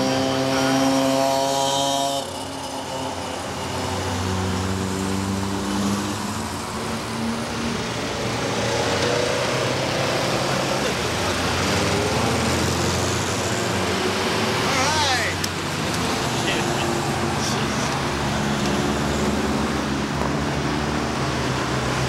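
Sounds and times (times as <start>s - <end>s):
rally car engines passing: 0.0s - 22.0s.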